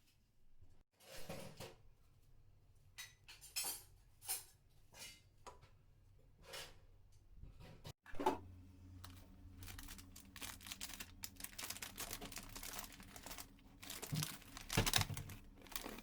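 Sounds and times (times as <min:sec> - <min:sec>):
small objects clinking: 0:09.0 - 0:16.0.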